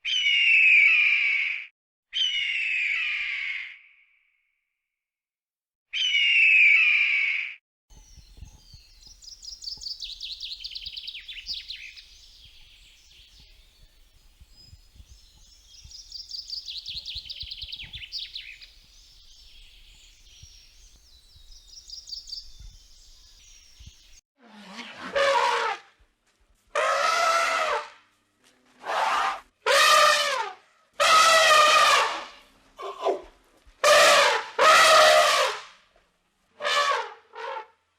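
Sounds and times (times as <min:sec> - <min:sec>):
songbird singing: 0:07.9 - 0:24.2.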